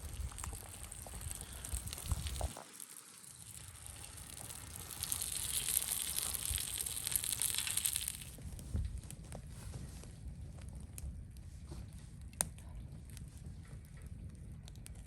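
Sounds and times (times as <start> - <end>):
food crackling over campfire: 0.0 - 8.5.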